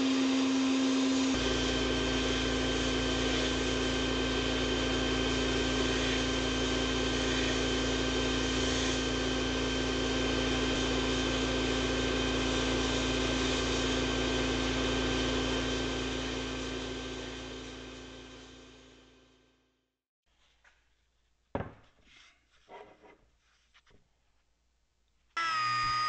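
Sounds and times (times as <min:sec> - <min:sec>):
hiss of sandblasting nozzle: 0:05.7 - 0:09.2, 0:10.8 - 0:14.8.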